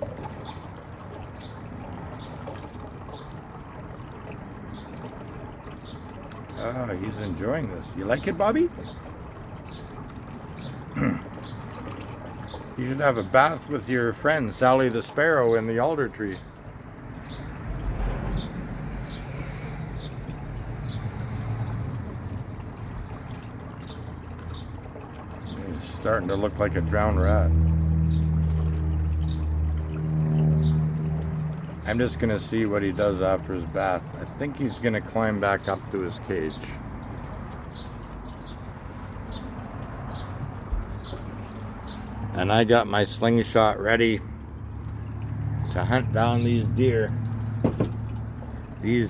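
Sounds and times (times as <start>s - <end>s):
trickle of running water: 0.0s - 49.0s.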